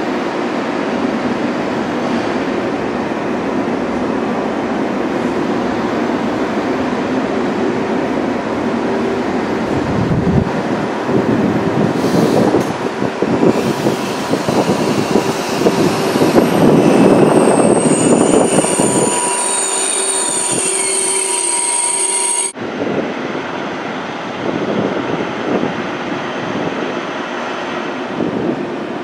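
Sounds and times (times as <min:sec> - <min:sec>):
train wheels rumbling on track: 0:00.0 - 0:29.0
high-pitched metallic squeal: 0:13.6 - 0:22.6.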